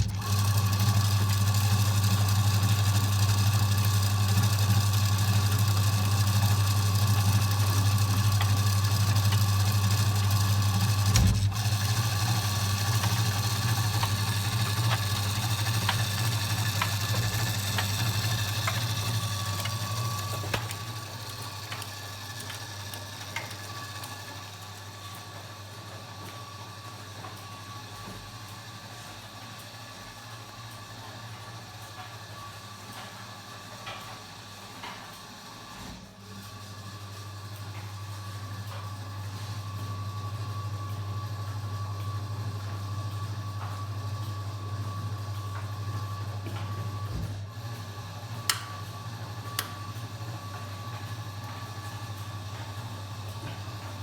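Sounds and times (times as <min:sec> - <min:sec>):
washing machine humming: 0:00.0 - 0:54.0.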